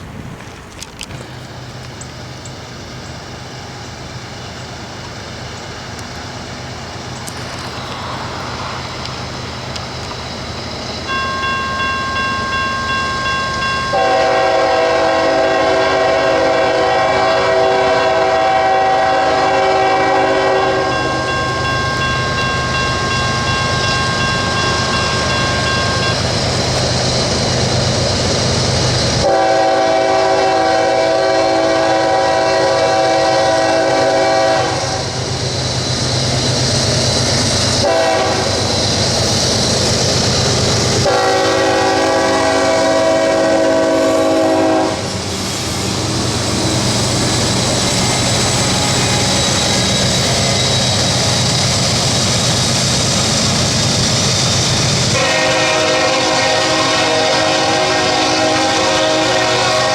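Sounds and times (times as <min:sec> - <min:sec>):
locomotive rumbling: 0:00.0 - 0:59.9
steady bell ringing: 0:11.1 - 0:14.0, 0:20.9 - 0:26.3
multi-chime train air horn: 0:11.1 - 0:26.3, 0:29.2 - 0:35.2, 0:37.8 - 0:38.6, 0:41.0 - 0:45.1, 0:55.1 - 0:59.9.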